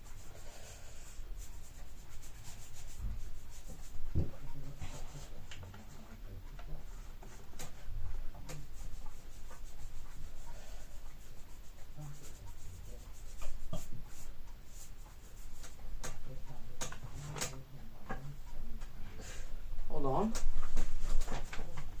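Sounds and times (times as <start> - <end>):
pencil scratching painted surface: 0.0 - 4.0, 6.8 - 15.8.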